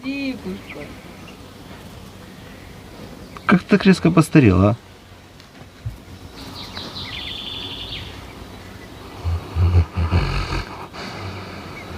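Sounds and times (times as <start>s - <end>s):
bird trilling: 6.4s - 11.9s
dog snoring: 9.2s - 11.6s.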